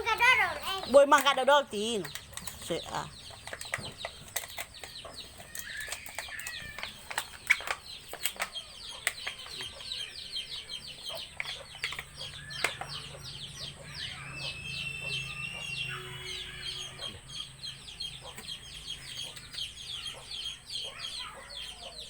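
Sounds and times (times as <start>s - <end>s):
sharp clicks: 0.0s - 14.0s
birds chirping: 0.0s - 22.0s.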